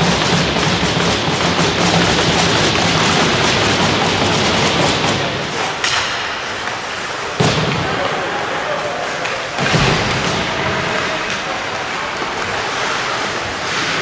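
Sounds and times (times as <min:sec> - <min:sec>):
stick and puck clicks: 0:00.0 - 0:08.2
skate blades scraping ice: 0:00.3 - 0:14.0.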